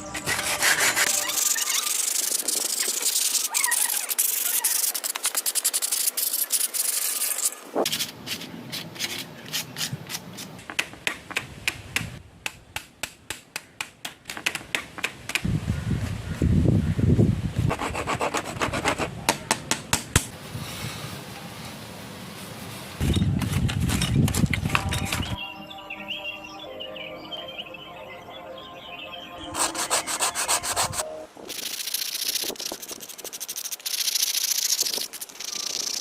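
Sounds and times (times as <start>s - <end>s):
abrasive scrubbing on hard surface: 29.6s - 35.3s.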